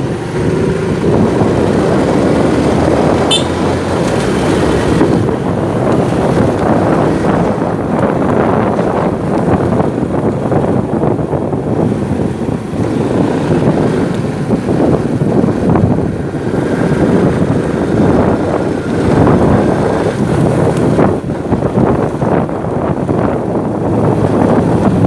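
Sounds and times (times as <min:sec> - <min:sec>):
motorcycle engine: 0:00.0 - 0:25.0
road noise: 0:00.0 - 0:25.0
wind buffeting microphone: 0:00.0 - 0:25.0.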